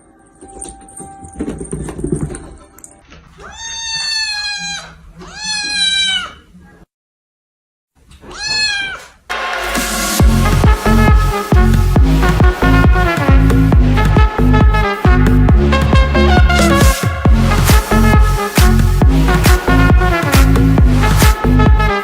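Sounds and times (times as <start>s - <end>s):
cat meowing: 3.4s - 6.5s, 8.2s - 9.2s
loud electronic dance music: 9.3s - 22.0s.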